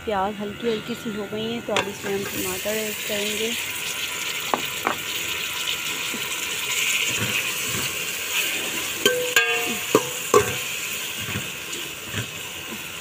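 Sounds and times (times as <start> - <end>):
onions sizzling in oil: 0.7 - 13.0
spoon clinking against pot: 9.0 - 10.7.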